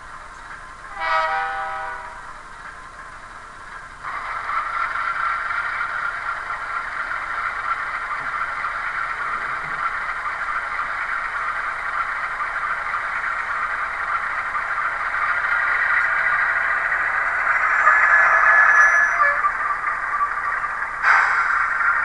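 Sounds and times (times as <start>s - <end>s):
hissing squealing noise: 14.0s - 22.0s.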